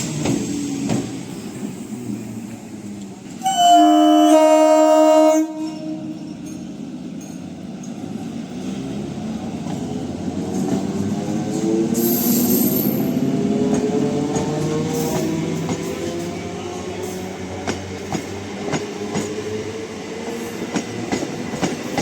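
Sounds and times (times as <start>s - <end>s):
train rumbling on track: 0.0s - 22.0s
train horn: 3.4s - 6.4s.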